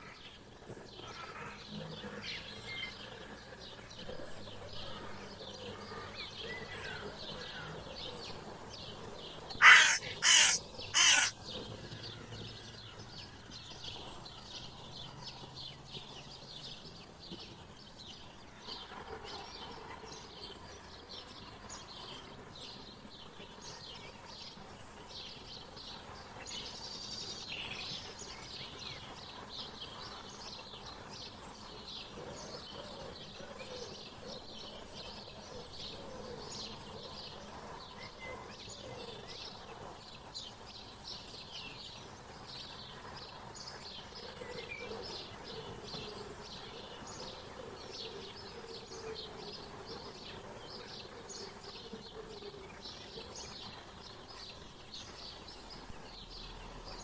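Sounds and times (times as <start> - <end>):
outdoor background hiss: 0.0 - 57.0
songbirds chirping: 0.0 - 57.0
low sliding bird calls: 9.6 - 11.3.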